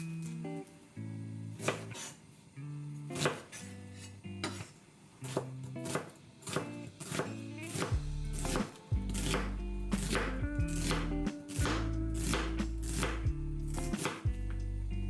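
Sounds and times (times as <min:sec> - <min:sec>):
knife chopping on cutting board: 0:01.6 - 0:02.1, 0:03.2 - 0:03.6, 0:04.4 - 0:14.3
light background music: 0:02.8 - 0:15.0.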